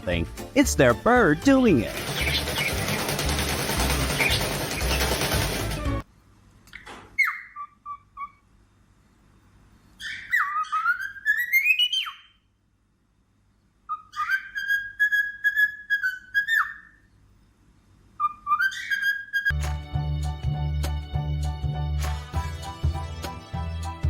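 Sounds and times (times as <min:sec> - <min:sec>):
parrot whistling: 0:10.0 - 0:12.4, 0:13.9 - 0:17.0, 0:18.2 - 0:19.6.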